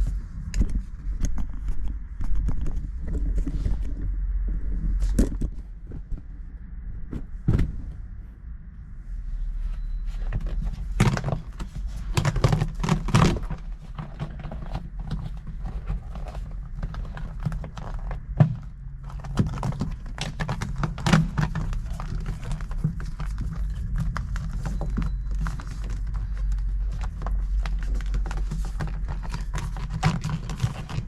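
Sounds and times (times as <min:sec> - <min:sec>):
steady low hum: 0:00.0 - 0:31.0
louder thuds: 0:07.1 - 0:08.0.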